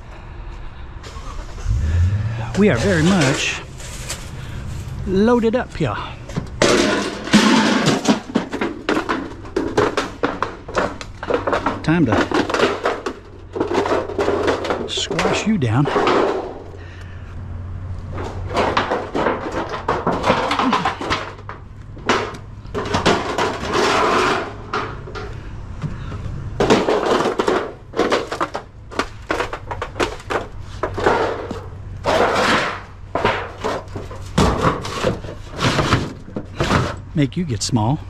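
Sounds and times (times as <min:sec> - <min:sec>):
scrap crunching as it is crushed: 0:01.0 - 0:38.0.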